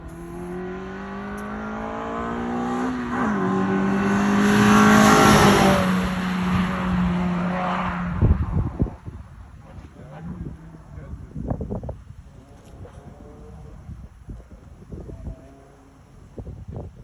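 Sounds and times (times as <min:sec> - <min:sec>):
car engine accelerating: 0:00.0 - 0:11.4.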